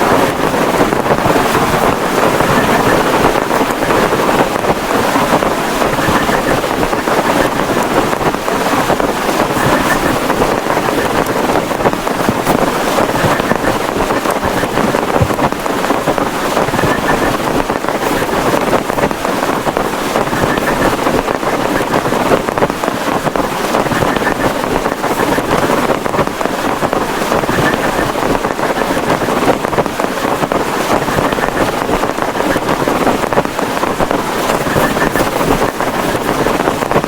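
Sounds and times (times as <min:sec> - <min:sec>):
heavy rain on plastic tarpaulin: 0:00.0 - 0:37.0.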